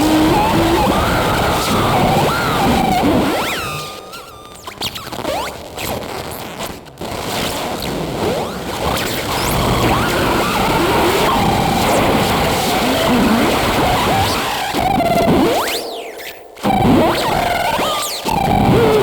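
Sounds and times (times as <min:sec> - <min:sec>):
electroacoustic noise music: 0:00.0 - 0:04.8.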